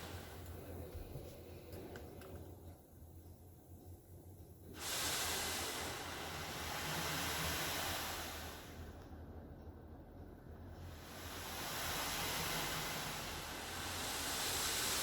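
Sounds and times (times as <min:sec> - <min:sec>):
water spray hissing on car: 0:04.8 - 0:08.9, 0:10.9 - 0:15.0.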